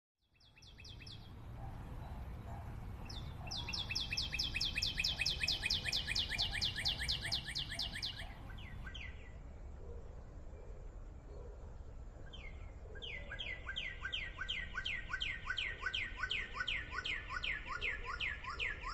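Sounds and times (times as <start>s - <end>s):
songbird trilling: 3.0s - 9.2s, 13.0s - 18.9s.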